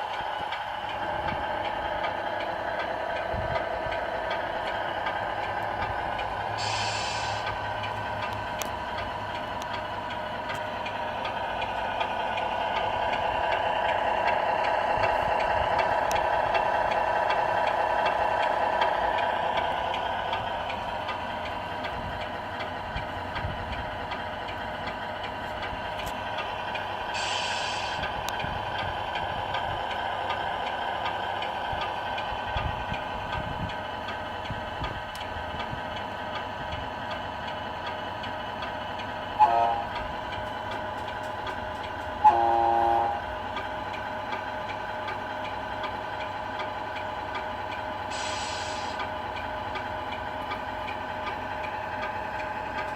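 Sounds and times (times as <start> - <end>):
regular ticking: 0.0 - 6.5, 7.4 - 27.1, 28.0 - 42.2, 43.2 - 48.1, 49.0 - 52.9.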